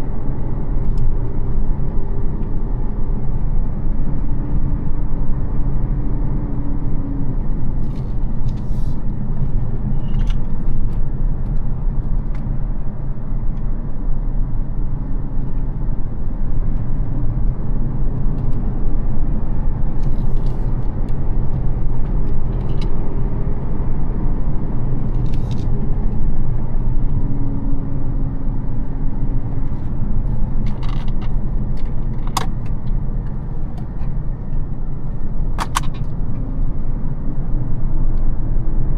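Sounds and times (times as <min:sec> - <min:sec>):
road and tyre noise: 0:00.0 - 0:38.9
car engine driving: 0:14.8 - 0:38.9
sharp clicks: 0:35.6 - 0:36.1.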